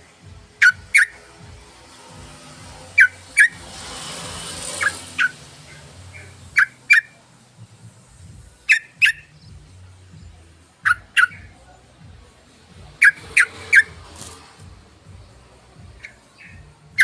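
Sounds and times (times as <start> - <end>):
bird calling in paired notes: 8.6 - 9.4.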